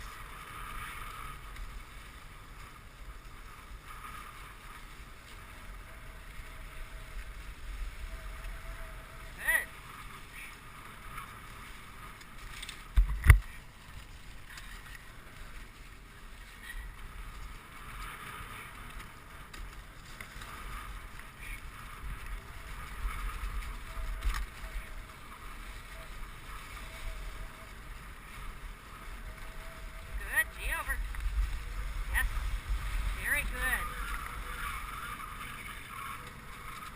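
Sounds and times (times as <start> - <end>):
sled runners scraping on snow: 0.0 - 36.9
wind on microphone: 0.0 - 36.9.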